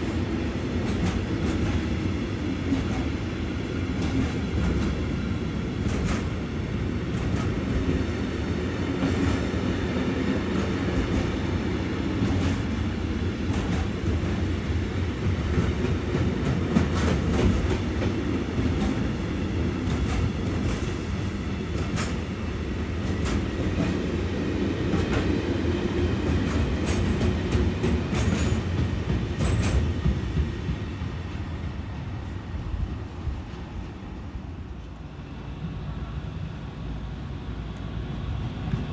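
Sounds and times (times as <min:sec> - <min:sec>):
train wheels rumbling on rails: 0:00.0 - 0:38.9
wheels clicking on rail joints: 0:12.2 - 0:12.9, 0:13.5 - 0:14.4, 0:15.3 - 0:22.3, 0:26.2 - 0:30.5.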